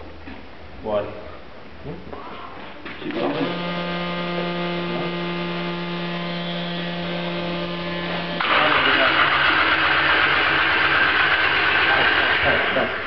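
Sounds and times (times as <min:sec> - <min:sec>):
steady electrical hum: 0:00.0 - 0:13.0
car engine starting and running: 0:03.0 - 0:12.8.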